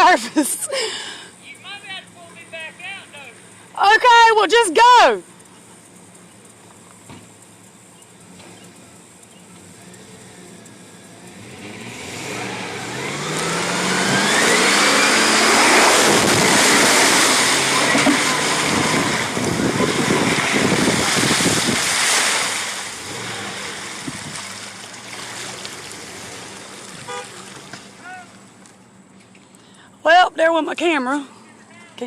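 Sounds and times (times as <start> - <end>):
truck engine revving: 0.0 - 29.0
tyres spinning in mud: 12.2 - 28.2.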